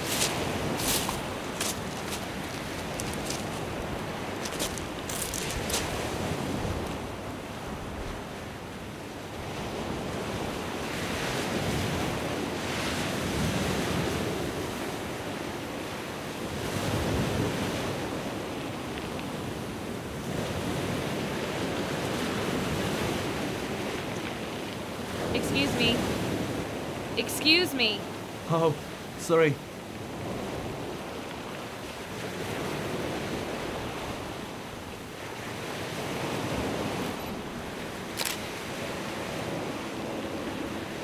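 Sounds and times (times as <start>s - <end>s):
surf breaking on shingle: 0.0s - 3.8s
footsteps on shingle: 0.0s - 6.0s
wind buffeting microphone: 0.0s - 8.4s.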